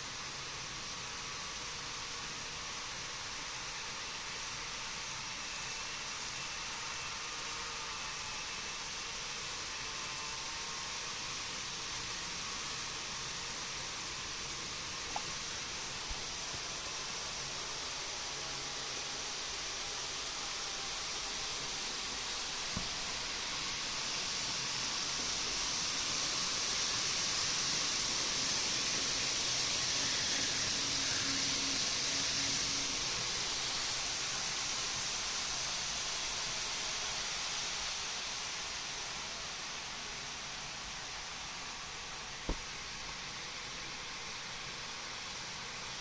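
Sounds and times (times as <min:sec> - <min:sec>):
model train rolling on track: 0:00.0 - 0:46.0
small click: 0:15.1 - 0:15.4.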